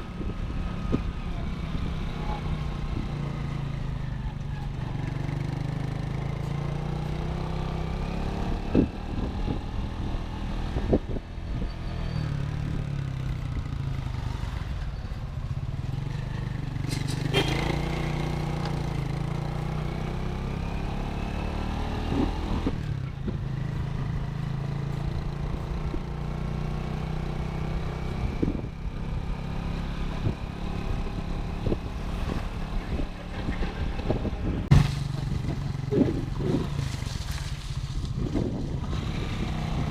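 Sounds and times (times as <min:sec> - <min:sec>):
motorcycle engine running: 0:22.1 - 0:39.9.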